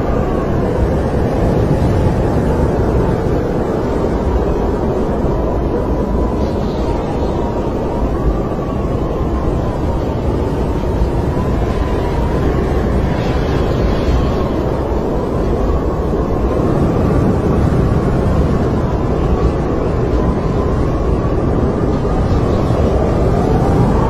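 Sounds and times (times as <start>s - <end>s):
storm wind roaring and whistling: 0.0s - 24.0s.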